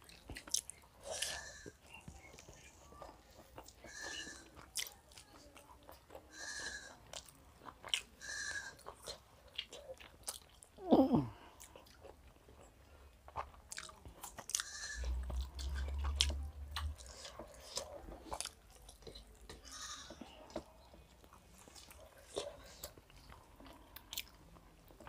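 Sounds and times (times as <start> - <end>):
chewing: 0.0 - 25.0
low hum: 14.9 - 17.4.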